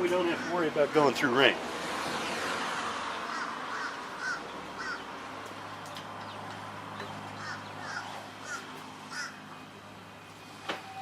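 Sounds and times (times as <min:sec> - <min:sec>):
bird calling: 0:03.3 - 0:05.1, 0:06.2 - 0:09.5.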